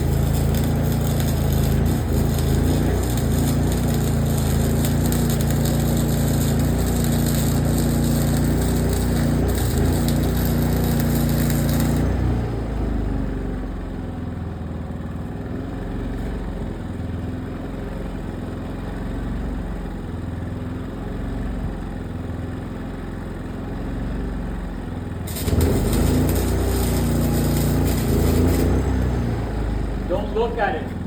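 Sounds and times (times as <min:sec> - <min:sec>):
welding arc crackling hiss: 0:00.0 - 0:12.4, 0:25.3 - 0:29.4
engine running: 0:00.0 - 0:31.0.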